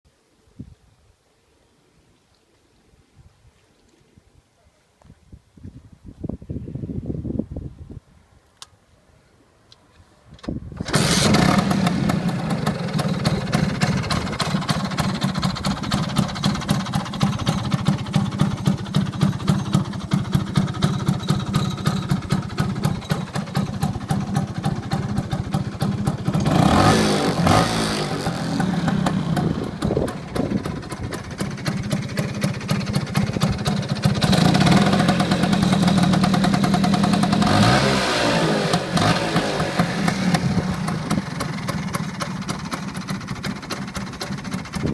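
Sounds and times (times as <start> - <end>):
scooter engine starting: 10.7 - 44.9
scooter engine idling and revving: 10.8 - 44.9.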